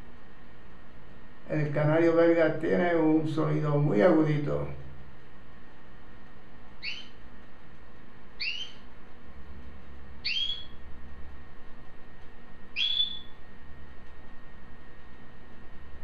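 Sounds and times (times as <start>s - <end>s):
canary calling: 6.8s - 7.2s, 8.4s - 8.9s, 10.2s - 10.8s, 12.8s - 13.4s.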